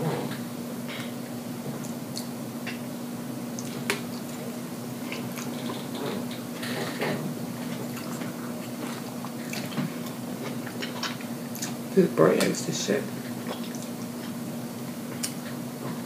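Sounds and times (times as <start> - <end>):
steady low hum: 0.0 - 16.0
wet chewing mouth sounds: 3.5 - 7.0, 7.6 - 11.8, 13.2 - 16.0.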